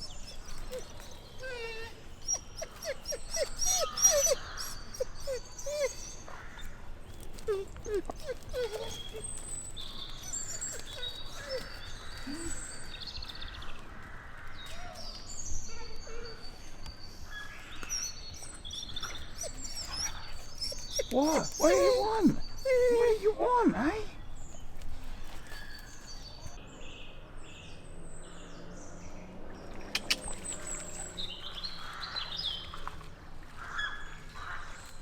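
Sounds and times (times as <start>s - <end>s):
wolf whining: 0.0s - 13.2s, 17.8s - 24.6s
birds chirping: 0.0s - 33.0s.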